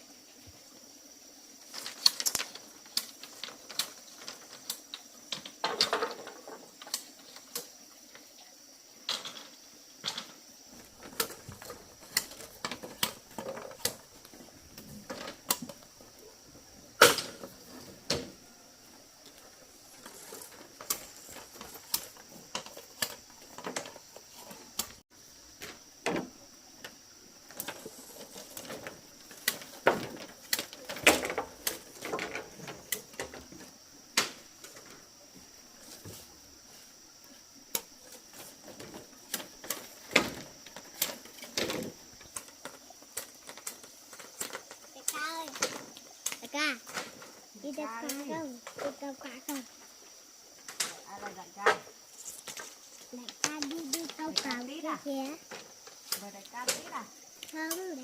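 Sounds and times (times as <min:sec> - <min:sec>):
high insect drone: 0:00.0 - 0:58.0
wood clicks and knocks: 0:01.7 - 0:07.7, 0:19.2 - 0:25.0, 0:25.6 - 0:35.1, 0:37.7 - 0:47.4.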